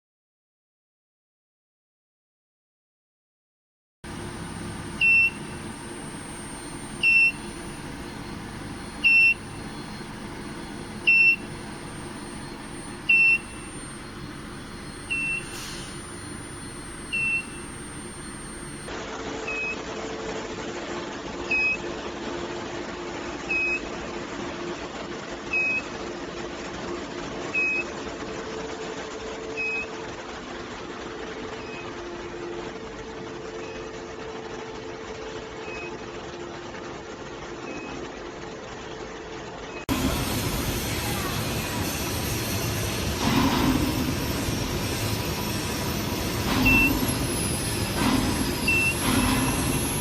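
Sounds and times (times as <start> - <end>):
equipment humming: 4.0 - 18.9, 39.9 - 50.0
short high electronic beeps: 4.1 - 18.9, 43.9 - 50.0
low electrical hum: 4.1 - 20.5.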